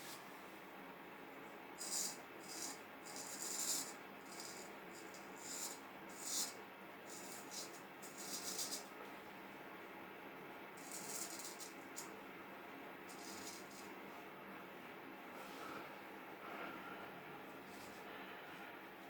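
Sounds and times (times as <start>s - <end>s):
razor scraping stubble: 1.8s - 8.9s, 13.1s - 13.9s.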